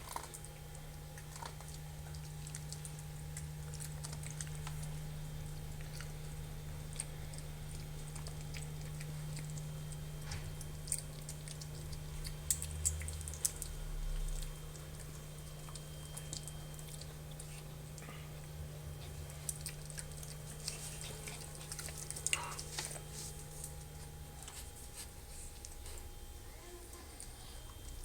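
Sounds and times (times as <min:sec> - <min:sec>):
puppies crunching dry kibble: 0:00.0 - 0:26.3
steady low hum: 0:00.0 - 0:28.0.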